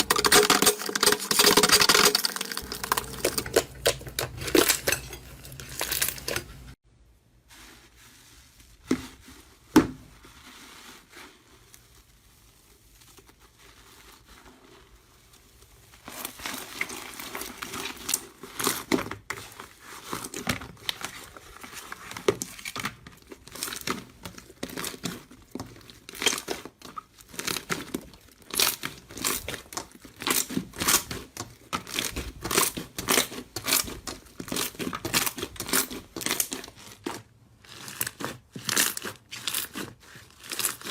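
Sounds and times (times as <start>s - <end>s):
crunchy material being crushed: 8.8s - 40.9s.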